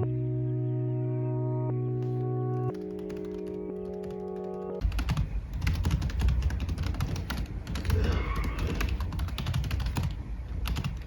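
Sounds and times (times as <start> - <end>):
soft background music: 0.0 - 8.8
rapid typing on keyboard: 2.7 - 11.0.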